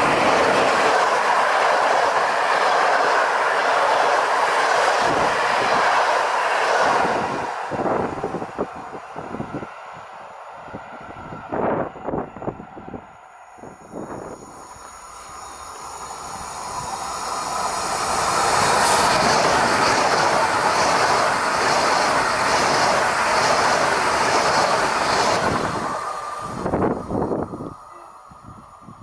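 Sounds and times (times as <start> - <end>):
high-speed train rushing past: 0.0 - 29.0
train wheels clattering: 17.8 - 26.4.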